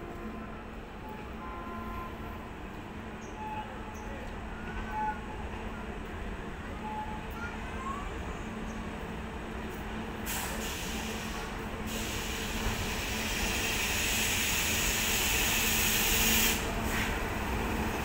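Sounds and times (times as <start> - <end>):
electric train humming with hiss: 10.2 - 18.0.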